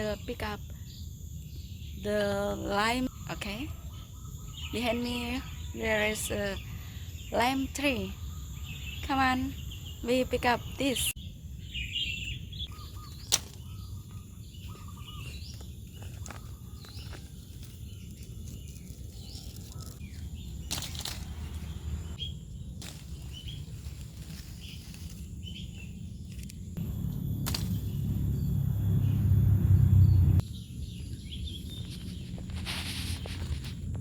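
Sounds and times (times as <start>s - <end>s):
bird chirps: 2.8s - 22.4s, 26.8s - 33.3s
leaves rustling: 12.7s - 29.0s, 31.5s - 34.0s
low rumble: 26.4s - 30.5s.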